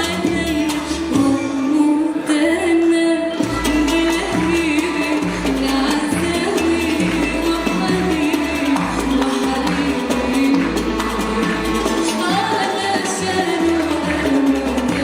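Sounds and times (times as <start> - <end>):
light percussion: 0.0 - 15.0
instrumental ensemble: 2.9 - 15.0
bass line: 3.4 - 15.0.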